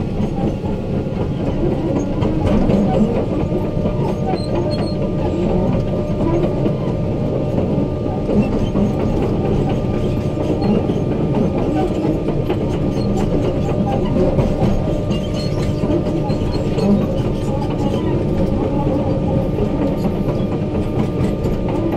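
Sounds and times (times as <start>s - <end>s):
excavator rumbling and clattering: 0.0s - 21.9s.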